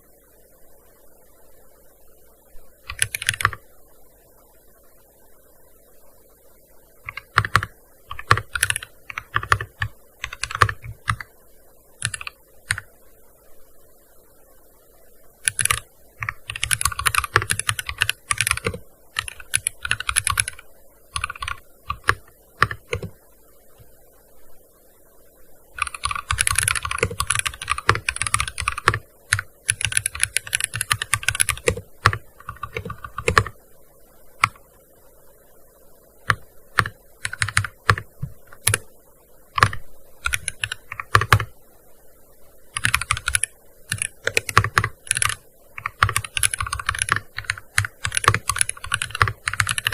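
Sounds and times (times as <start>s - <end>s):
keyboard typing: 2.9s - 3.6s, 7.0s - 11.3s, 12.0s - 12.9s, 15.4s - 23.2s, 25.8s - 33.6s, 34.4s - 34.7s, 36.2s - 38.9s, 39.6s - 41.5s, 42.7s - 49.9s.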